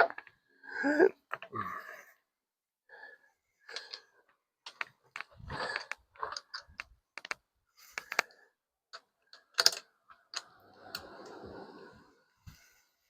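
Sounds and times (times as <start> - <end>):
tools and metal parts clicking: 8.9 - 10.5.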